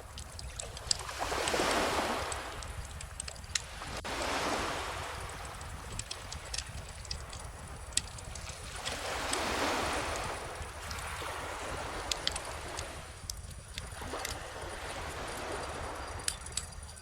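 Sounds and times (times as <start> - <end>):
ocean waves washing ashore: 0.0 - 17.0
wood fire crackling and popping: 5.4 - 8.6.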